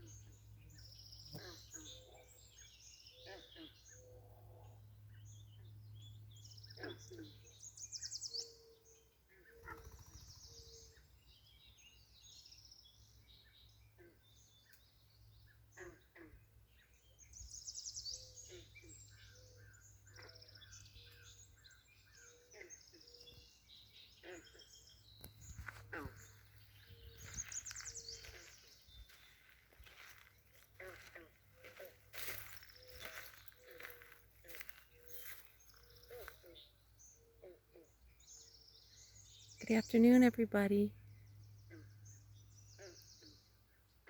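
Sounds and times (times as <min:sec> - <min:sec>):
birds chirping: 0:00.0 - 0:44.0.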